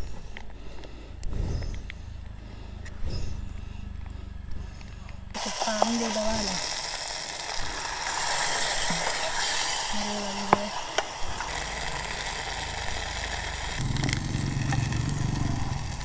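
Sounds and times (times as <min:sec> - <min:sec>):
low engine hum: 0:00.0 - 0:05.6, 0:11.3 - 0:16.0
onions sizzling in oil: 0:05.4 - 0:16.0
water pouring: 0:05.4 - 0:16.0.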